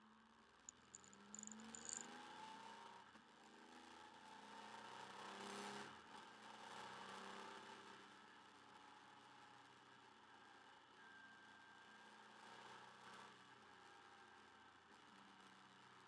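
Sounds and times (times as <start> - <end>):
sharp ticks and rattles: 0.7 - 2.2
faint motorcycle engine accelerating: 0.7 - 2.9.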